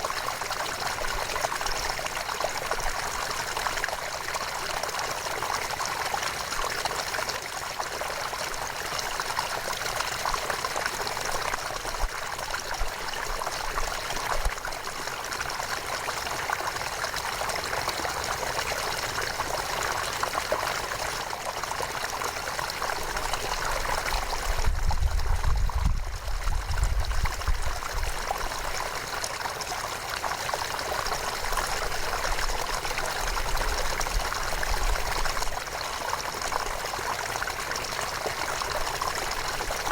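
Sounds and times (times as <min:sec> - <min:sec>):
deep low rumble: 0:24.6 - 0:27.9.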